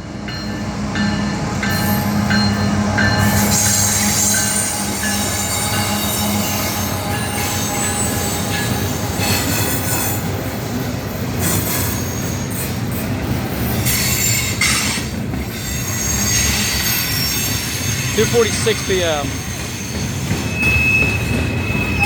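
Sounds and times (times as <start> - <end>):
freight train rumbling past: 0.0 - 22.0
steel wheels squealing on rails: 0.2 - 22.0.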